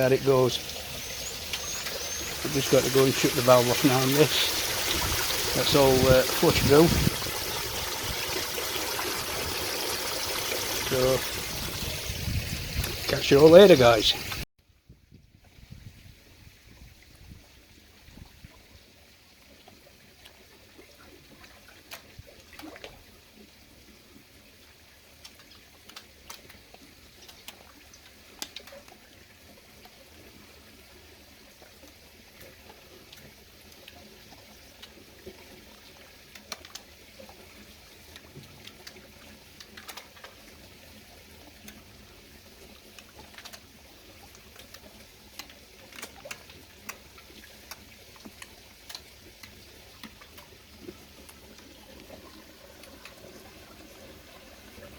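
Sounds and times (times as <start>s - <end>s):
water trickling: 0.0s - 14.5s, 15.7s - 54.9s
light clicks and ticks: 44.3s - 50.5s.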